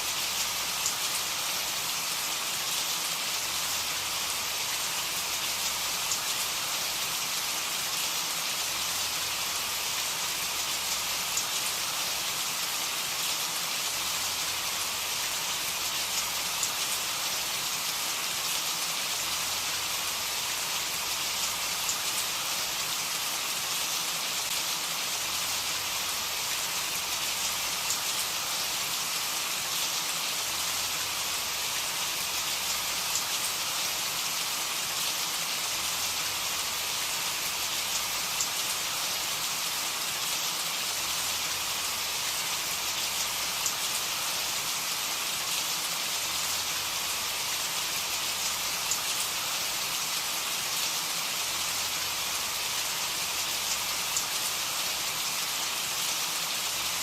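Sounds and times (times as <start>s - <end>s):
rain hissing: 0.0s - 57.0s
faint raindrop ticks: 37.9s - 38.6s.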